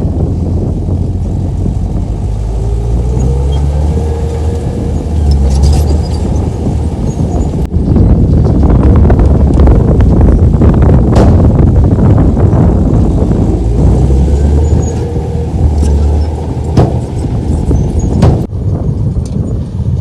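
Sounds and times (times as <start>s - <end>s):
bulldozer diesel engine under load: 0.0s - 18.6s
metal clanking: 3.2s - 7.6s, 14.3s - 18.5s
sharp knocks: 16.7s - 17.1s, 18.2s - 18.5s.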